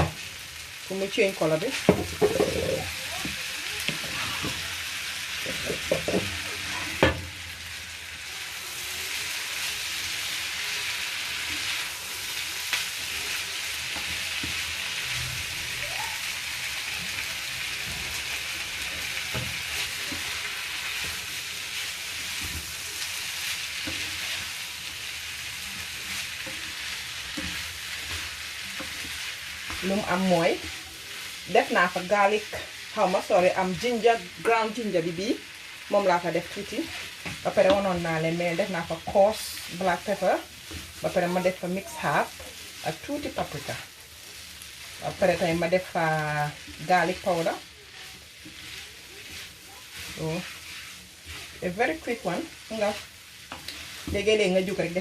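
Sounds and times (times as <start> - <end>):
food sizzling in a pan: 0.0 - 55.0
utensil knocking against pan: 5.9 - 6.3.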